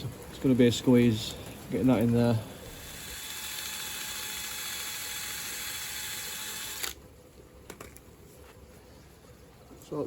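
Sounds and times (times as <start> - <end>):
small power tool running: 2.7 - 7.0.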